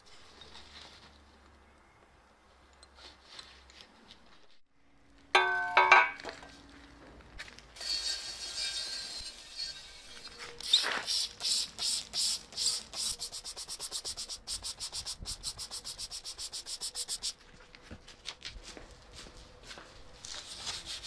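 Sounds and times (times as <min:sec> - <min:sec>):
hand sanding scratching: 0:07.8 - 0:17.4, 0:20.2 - 0:21.0.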